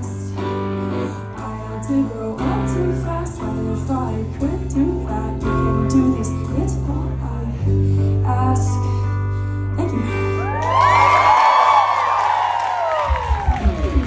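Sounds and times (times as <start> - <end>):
audience whooping and cheering: 10.4 - 14.0.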